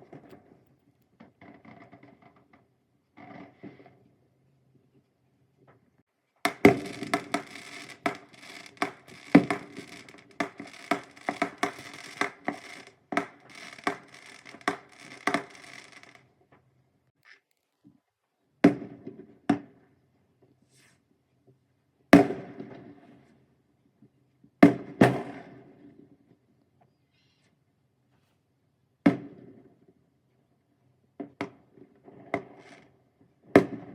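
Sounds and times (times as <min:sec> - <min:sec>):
fireworks bangs and crackling: 0:06.5 - 0:16.2.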